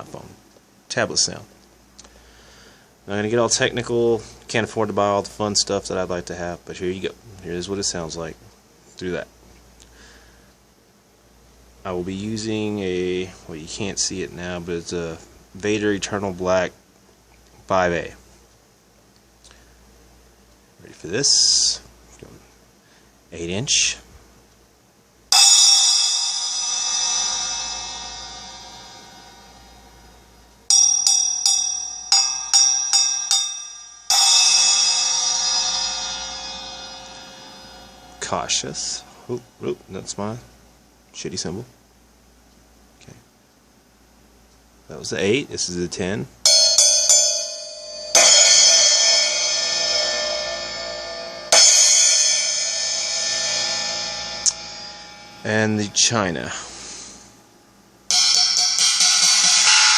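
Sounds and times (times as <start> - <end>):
splash cymbal struck with drumstick: 25.3 - 39.1, 46.5 - 55.5, 58.1 - 59.9.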